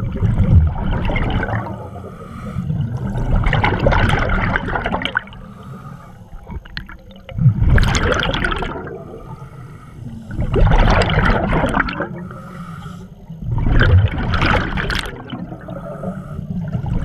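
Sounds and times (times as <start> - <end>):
bubbles gurgling: 0.0 - 2.0, 2.7 - 5.5, 6.3 - 9.4, 10.2 - 12.3, 13.4 - 17.0
scuba regulator breathing: 1.6 - 3.0, 5.3 - 6.6, 9.1 - 10.7, 12.0 - 13.4, 15.4 - 17.0.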